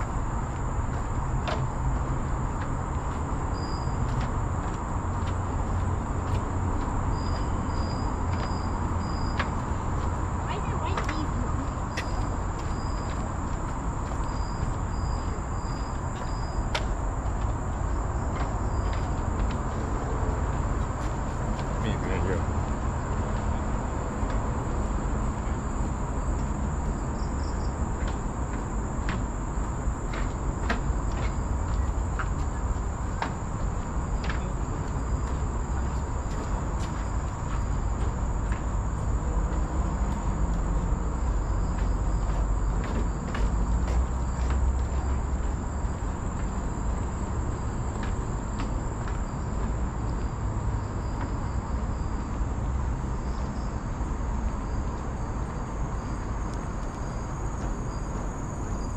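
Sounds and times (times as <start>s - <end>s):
insects droning high-pitched: 0.0s - 58.9s
high-pitched insect drone: 3.4s - 4.1s.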